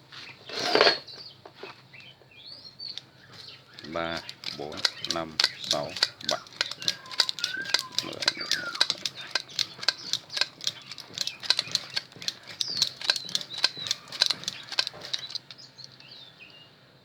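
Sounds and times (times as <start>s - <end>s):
wire winding clicks and rattles: 2.9s - 16.1s
faint bird chirps: 6.4s - 16.7s.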